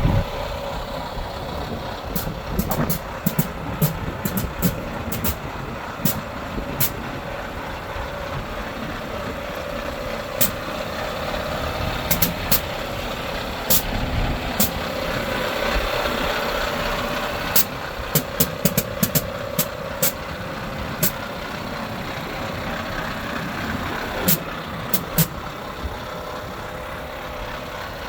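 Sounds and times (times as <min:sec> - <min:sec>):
diesel truck engine idling: 0:00.0 - 0:28.0
sharp clicks: 0:02.2 - 0:05.4, 0:06.0 - 0:06.2, 0:06.8 - 0:07.0, 0:12.1 - 0:12.7, 0:17.6 - 0:20.3, 0:24.2 - 0:25.4.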